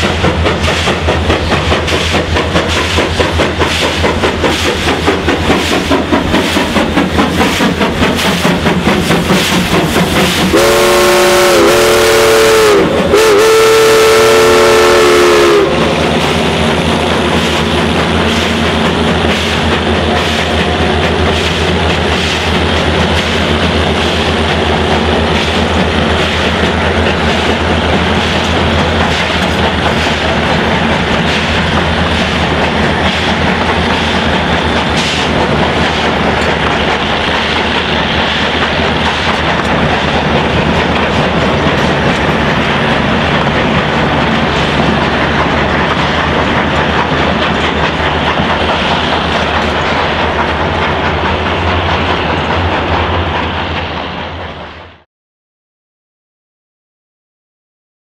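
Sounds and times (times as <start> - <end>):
train wheels clattering over rails: 0.0 - 55.0.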